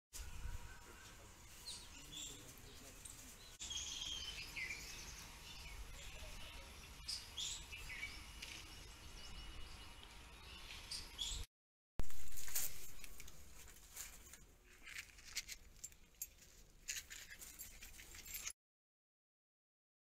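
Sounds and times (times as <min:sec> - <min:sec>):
small birds chirping: 0:01.5 - 0:11.5.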